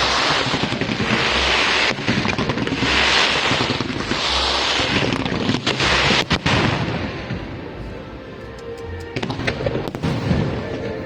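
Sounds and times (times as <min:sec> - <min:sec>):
sharp firework cracks: 0:00.0 - 0:07.0
fireworks display: 0:00.0 - 0:07.8, 0:09.1 - 0:11.0.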